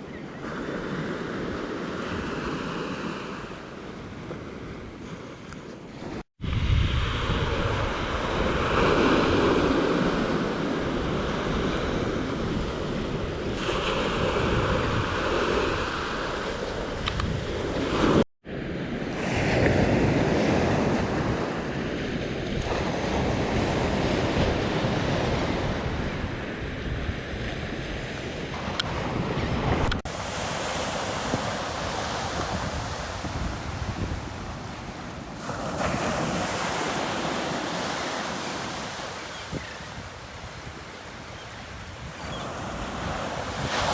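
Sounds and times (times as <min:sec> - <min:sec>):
wind buffeting microphone: 0:06.1 - 0:18.0, 0:22.2 - 0:43.9
surf washing on a beach: 0:28.4 - 0:43.9.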